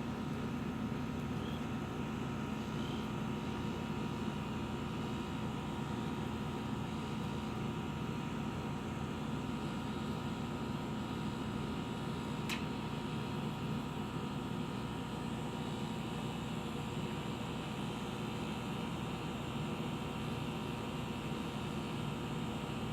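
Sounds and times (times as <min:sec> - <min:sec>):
mechanical hum with hiss: 0:00.0 - 0:22.9
faint short chirps: 0:01.4 - 0:01.7, 0:02.6 - 0:03.1.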